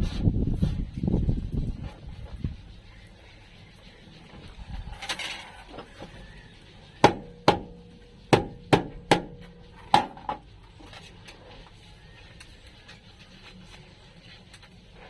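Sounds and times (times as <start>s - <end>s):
hammer striking sheet metal: 7.0s - 10.4s.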